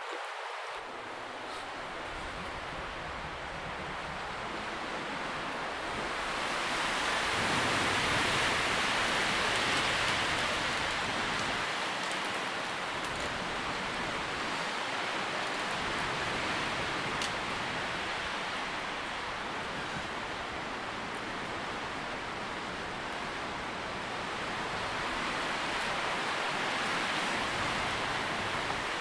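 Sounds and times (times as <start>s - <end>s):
wind rustling tree leaves: 0.0s - 29.0s
faint light ticks: 9.7s - 14.0s, 17.2s - 17.4s.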